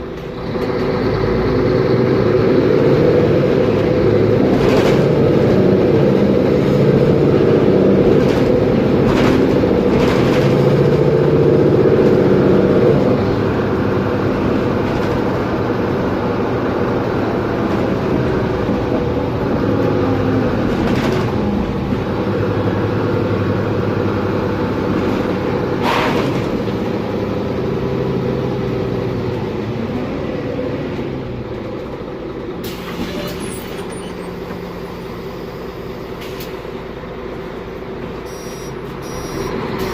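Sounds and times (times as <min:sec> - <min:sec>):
bus diesel engine under load: 0:00.0 - 0:39.9
differential whine: 0:38.3 - 0:39.6.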